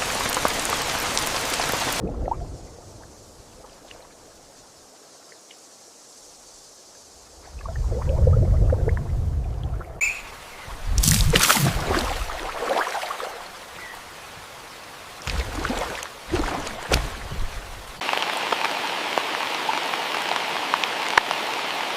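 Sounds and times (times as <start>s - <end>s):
water pouring and splashing: 0.0s - 4.8s, 7.2s - 10.0s, 10.6s - 13.7s, 14.9s - 21.4s
rain falling: 0.0s - 21.9s.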